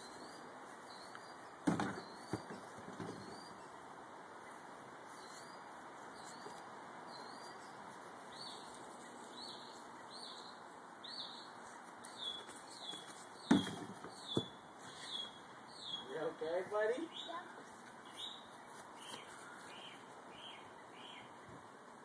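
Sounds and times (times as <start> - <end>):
bird chirping: 0.0 - 21.5.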